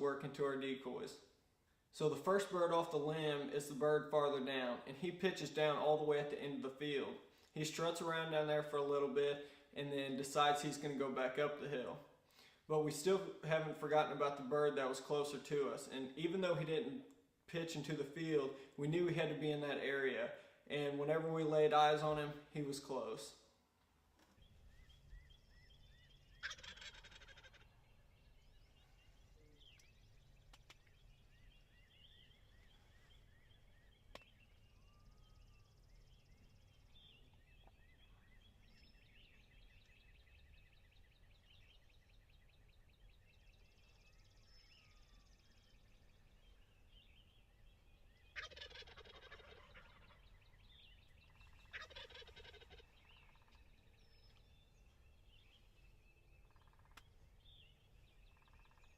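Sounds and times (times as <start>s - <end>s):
turkey gobbling: 26.3s - 28.3s, 48.3s - 53.7s.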